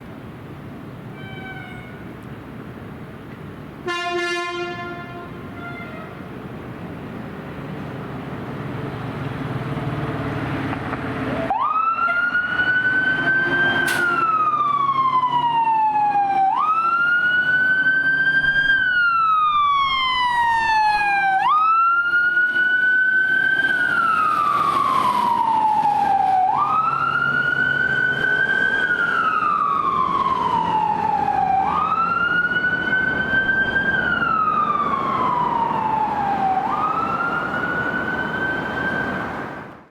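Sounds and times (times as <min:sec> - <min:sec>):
fire engine horn blast: 0:03.8 - 0:06.2, 0:12.0 - 0:12.4
fire engine pulling away: 0:06.2 - 0:39.9
wailing siren: 0:11.3 - 0:39.7.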